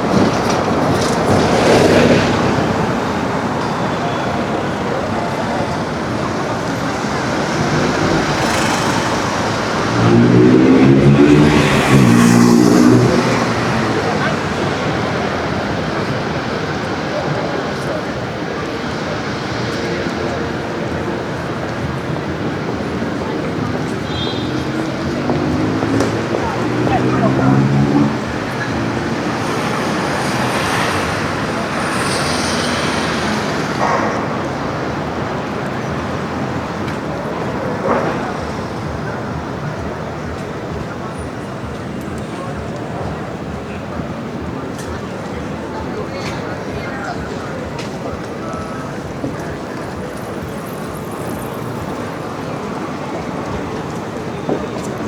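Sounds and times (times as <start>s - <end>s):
vehicle engine passing: 0.0s - 39.9s
pedestrians chatting: 0.0s - 55.0s
traffic noise: 0.0s - 55.0s.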